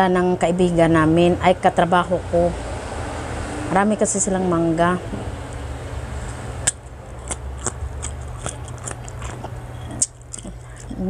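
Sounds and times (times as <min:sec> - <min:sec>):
crunching unripe mango: 0:05.4 - 0:11.0.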